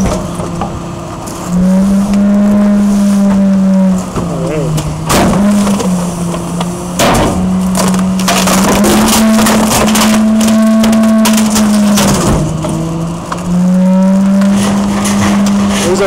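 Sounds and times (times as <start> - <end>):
vehicle engine drone: 0.0 - 16.0
loud crackling rattle: 5.1 - 16.0.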